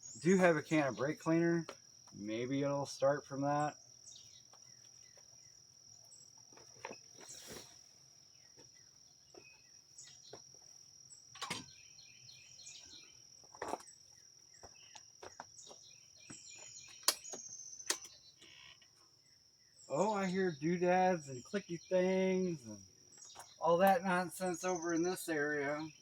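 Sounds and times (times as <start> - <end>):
crickets trilling: 0.0 - 26.0
handling clicks and knocks: 11.3 - 11.7, 16.9 - 18.5.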